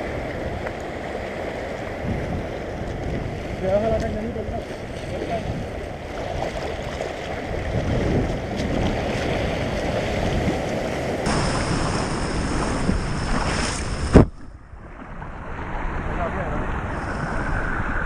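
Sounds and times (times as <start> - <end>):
waves washing over rocks: 0.0 - 14.4
wind buffeting microphone: 0.0 - 18.0.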